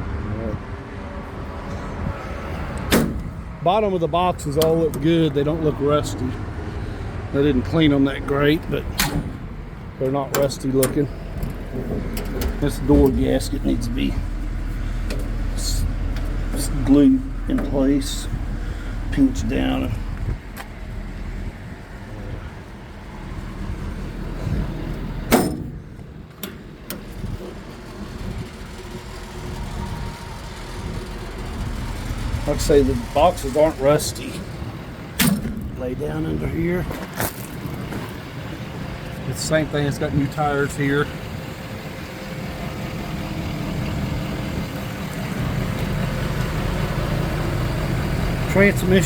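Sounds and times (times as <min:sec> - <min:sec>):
truck engine idling: 0:01.2 - 0:49.0
metal door slamming shut: 0:02.9 - 0:03.4, 0:08.9 - 0:09.5, 0:10.3 - 0:14.4, 0:25.3 - 0:27.1, 0:35.2 - 0:35.8
low rumble: 0:06.3 - 0:26.3
latch clicks: 0:08.9 - 0:13.2, 0:24.9 - 0:27.2, 0:35.2 - 0:35.8.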